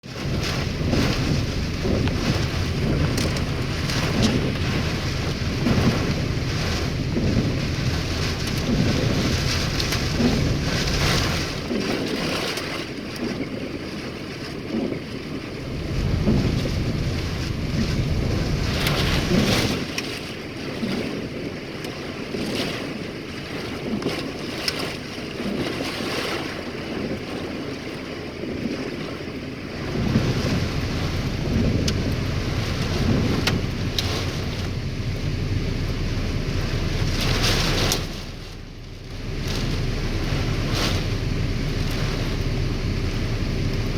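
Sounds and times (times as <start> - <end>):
heavy rain in gusting wind: 0.0 - 43.9
hailstones ticking on hard surface: 0.2 - 11.9, 30.0 - 37.4.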